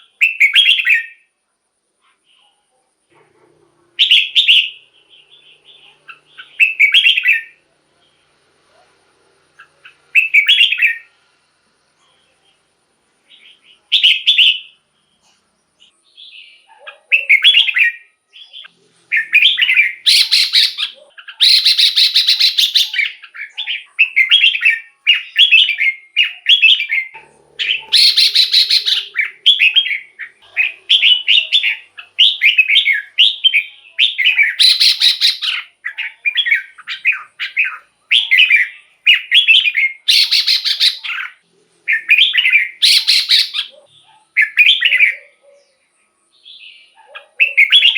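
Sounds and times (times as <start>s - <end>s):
bird singing warbled phrases: 0.0s - 1.4s, 3.9s - 8.4s, 9.5s - 11.2s, 11.9s - 47.9s
harsh rasping bird calls: 4.0s - 7.6s, 9.5s - 11.1s, 16.2s - 45.8s, 46.5s - 47.9s.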